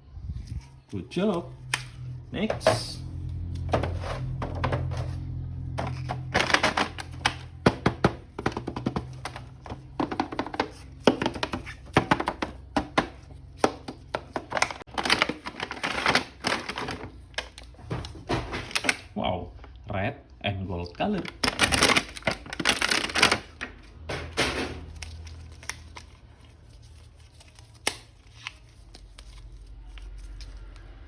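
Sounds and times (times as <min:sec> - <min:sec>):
plastic packaging clicks and crinkling: 0:05.8 - 0:17.8, 0:21.0 - 0:23.7, 0:24.9 - 0:31.0.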